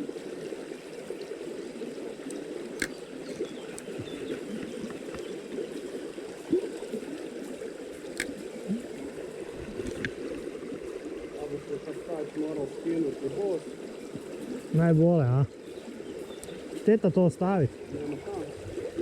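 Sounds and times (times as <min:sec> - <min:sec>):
stream gurgling over stones: 0:00.0 - 0:19.0
sharp clicks: 0:02.3 - 0:03.0, 0:08.1 - 0:08.4.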